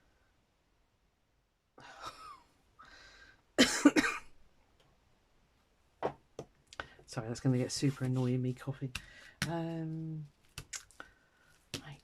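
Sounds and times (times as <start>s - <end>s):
woman coughing: 3.6s - 4.3s.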